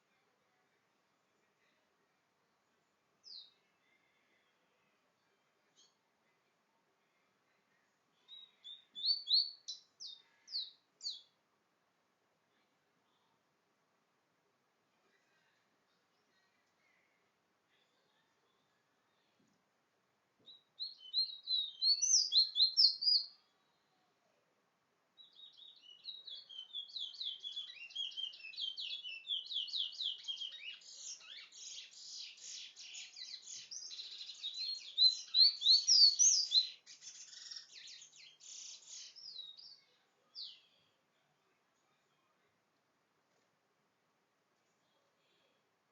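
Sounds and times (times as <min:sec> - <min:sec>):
songbird singing trills: 0:08.2 - 0:11.4, 0:20.4 - 0:23.5, 0:25.2 - 0:40.9.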